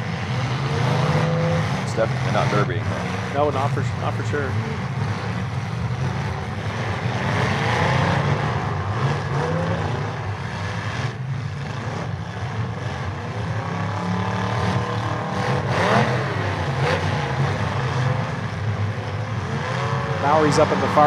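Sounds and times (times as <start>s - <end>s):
car engines revving: 0.0s - 21.0s.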